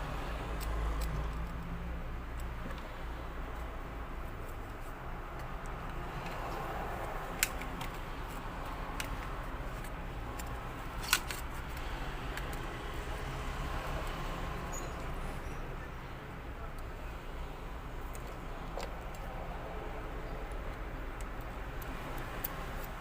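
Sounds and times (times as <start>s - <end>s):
plastic parts clicking and tapping: 7.3s - 12.6s.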